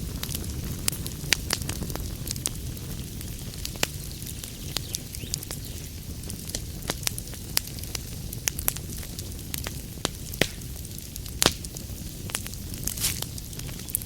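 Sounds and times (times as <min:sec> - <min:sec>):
fire crackling and popping: 0:00.0 - 0:14.0
wood fire burning: 0:00.0 - 0:14.0.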